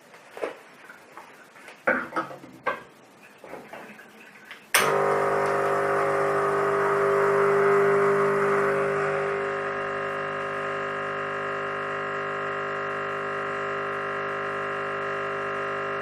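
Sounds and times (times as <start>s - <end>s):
espresso machine pump buzzing: 4.8s - 16.0s.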